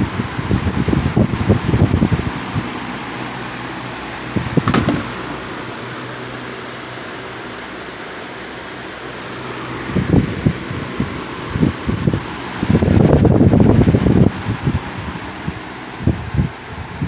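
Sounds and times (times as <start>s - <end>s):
electric fan running: 0.0s - 17.0s
knock and click: 4.6s - 5.3s.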